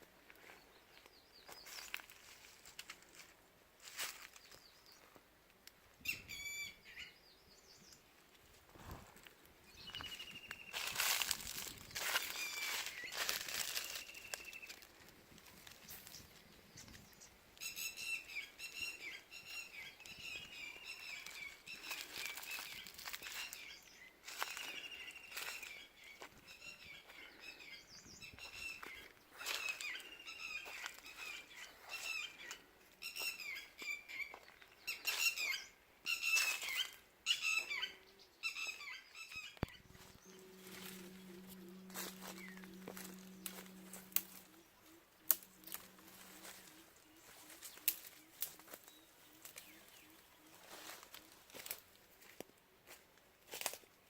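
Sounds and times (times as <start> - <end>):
quail chirping calls: 6.0 - 7.2, 9.8 - 14.7, 17.6 - 51.5.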